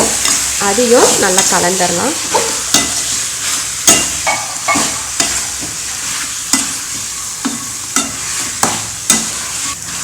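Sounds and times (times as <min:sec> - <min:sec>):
chicken sizzling in oil: 0:00.0 - 0:10.0
utensil scraping against pan: 0:02.2 - 0:10.0.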